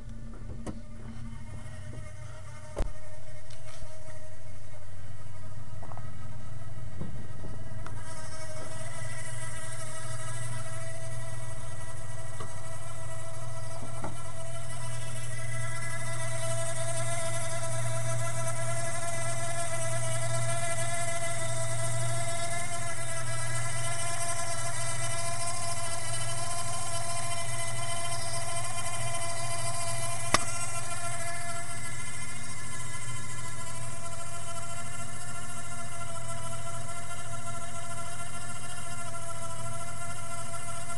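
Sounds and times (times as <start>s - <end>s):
engine running with whine: 0.0s - 2.9s.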